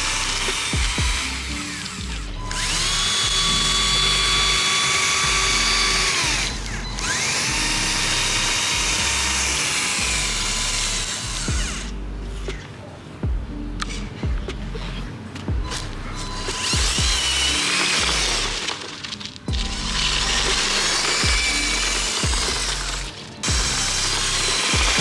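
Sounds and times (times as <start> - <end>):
small electric motor whining: 0.0 - 12.7, 15.6 - 25.0.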